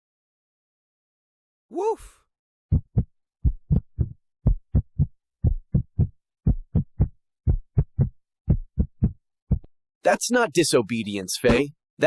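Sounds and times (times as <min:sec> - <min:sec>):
dull low thumps: 0:02.7 - 0:09.7.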